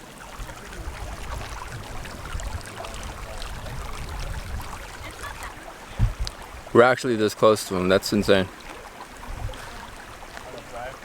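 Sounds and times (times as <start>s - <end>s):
waterfall and stream rushing: 0.0s - 11.0s.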